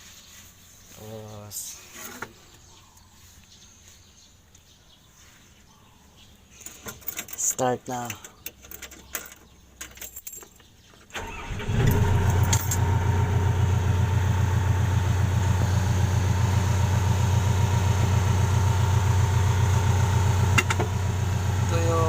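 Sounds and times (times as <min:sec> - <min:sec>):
diesel engine starting and idling: 0:11.1 - 0:22.0.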